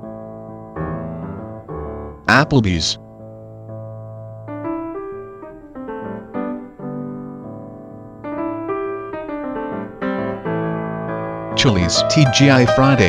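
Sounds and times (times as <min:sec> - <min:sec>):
background piano music: 0:00.0 - 0:13.0.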